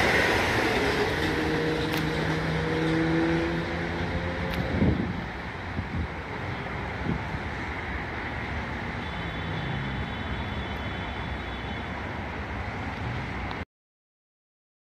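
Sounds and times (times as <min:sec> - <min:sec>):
train rumbling: 0:00.0 - 0:09.0
road traffic: 0:00.0 - 0:13.7.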